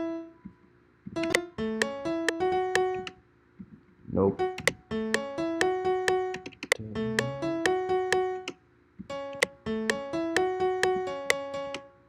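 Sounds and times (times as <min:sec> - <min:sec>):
piano melody: 0:00.0 - 0:00.5, 0:01.1 - 0:03.2, 0:04.3 - 0:12.0
sharp clicks: 0:01.1 - 0:03.8, 0:04.6 - 0:06.8.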